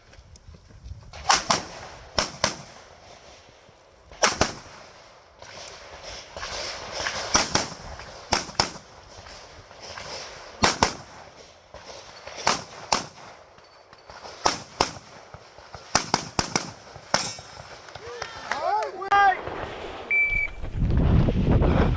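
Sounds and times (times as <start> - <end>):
pistol shots: 1.2 - 2.8, 4.2 - 4.9, 6.4 - 9.0, 10.0 - 13.4, 14.1 - 17.9.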